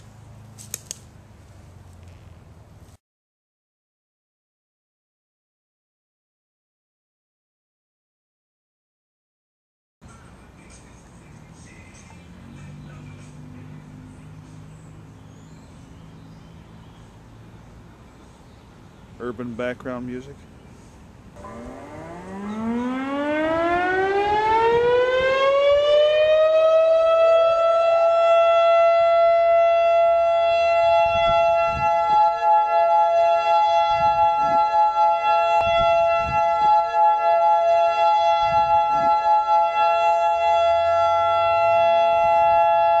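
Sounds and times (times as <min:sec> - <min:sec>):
higher siren tone: 0:21.4 - 0:43.0
warning siren wailing: 0:21.4 - 0:43.0.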